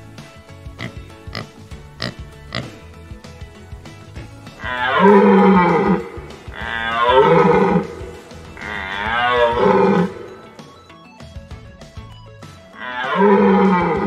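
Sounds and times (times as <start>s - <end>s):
soft background music: 0.0s - 14.0s
deer bellowing: 4.5s - 10.5s, 12.8s - 14.0s.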